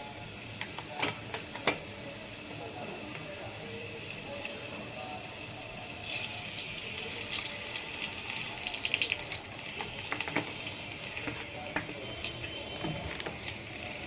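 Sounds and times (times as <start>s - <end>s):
water running from a tap: 2.4s - 11.8s.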